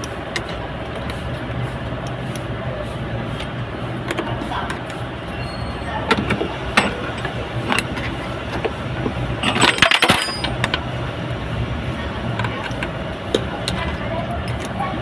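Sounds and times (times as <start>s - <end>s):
engine humming: 0.0s - 15.0s
metal rattling clatter: 6.0s - 10.9s.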